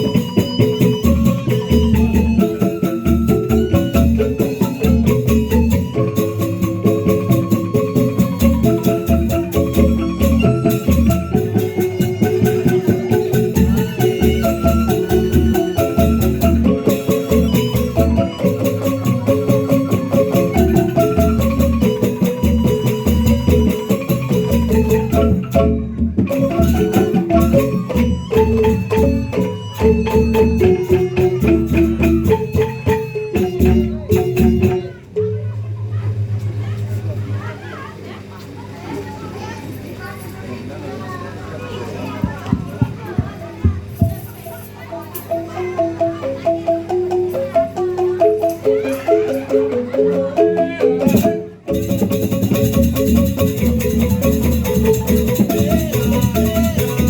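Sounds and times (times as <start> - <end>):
low drum beat: 0.0 - 37.6, 42.2 - 44.3
metallophones playing fast notes: 0.0 - 38.1, 43.2 - 57.0.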